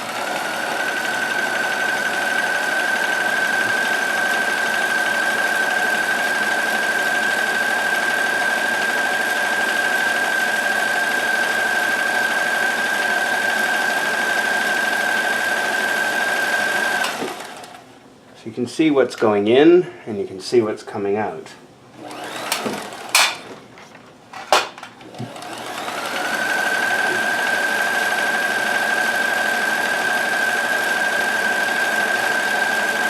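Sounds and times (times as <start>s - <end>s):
sewing machine stitching: 0.0s - 17.8s, 22.0s - 23.6s, 25.0s - 33.0s.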